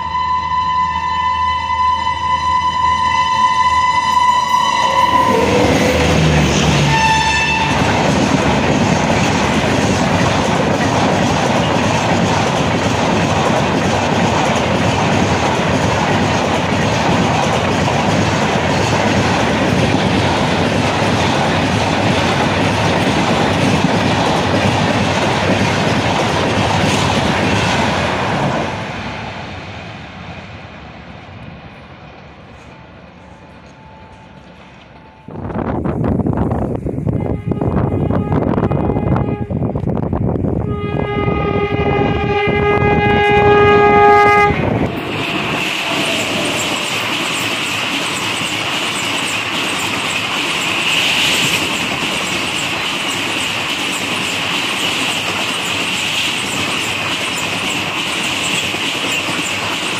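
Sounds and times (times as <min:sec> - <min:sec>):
locomotive horn blasts: 0:00.0 - 0:08.0, 0:37.1 - 0:39.6, 0:40.6 - 0:45.1
train rushing past on rails: 0:00.0 - 0:59.9.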